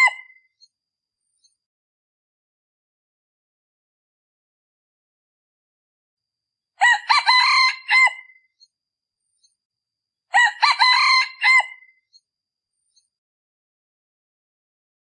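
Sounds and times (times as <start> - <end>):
junglefowl cock crowing: 0.0 - 0.3, 6.8 - 8.4, 10.3 - 11.9.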